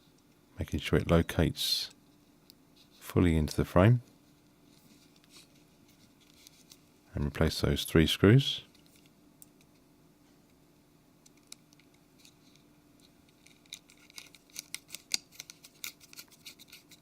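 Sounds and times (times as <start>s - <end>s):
screwdriver clicks and scratches: 13.3s - 17.0s.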